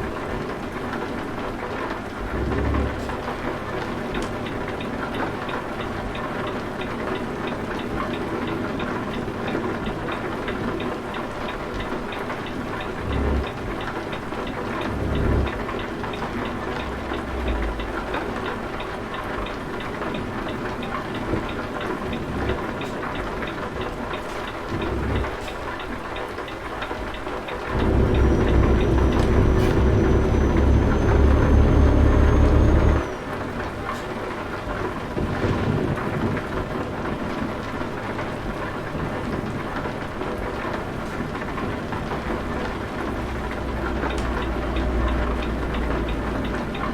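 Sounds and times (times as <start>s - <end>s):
steady rain: 0.0s - 46.9s
truck engine rumble: 1.6s - 5.1s, 11.4s - 35.4s, 40.9s - 46.9s.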